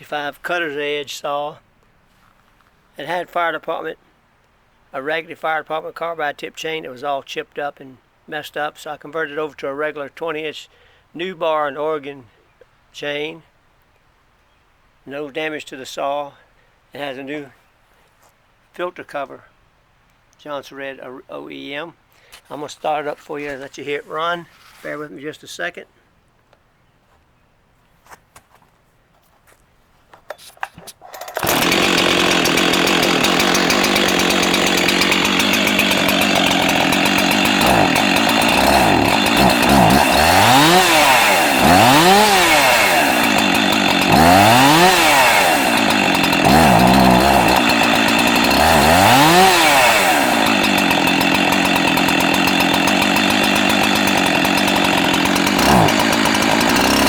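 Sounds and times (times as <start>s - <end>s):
chainsaw revving: 30.9s - 57.0s.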